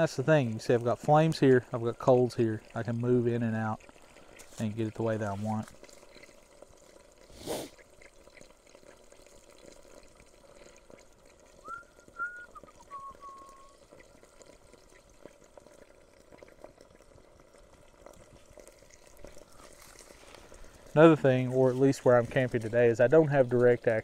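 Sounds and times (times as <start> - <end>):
food frying in a pan: 3.8 - 22.1
whistled notes: 11.6 - 13.8.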